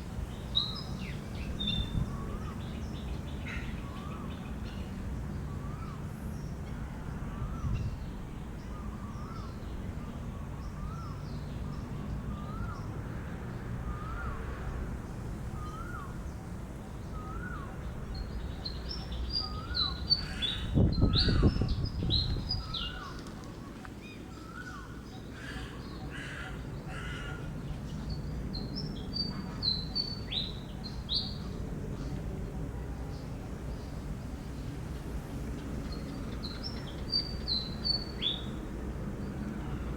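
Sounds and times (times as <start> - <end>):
bird calling: 17.1 - 17.8.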